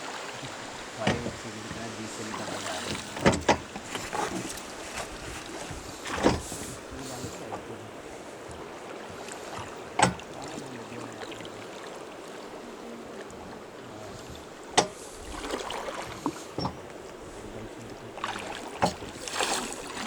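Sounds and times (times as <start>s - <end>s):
river water rushing: 0.0s - 20.0s
light knocks: 1.0s - 1.9s, 2.9s - 7.7s, 8.4s - 10.6s, 14.2s - 15.0s, 18.8s - 19.1s.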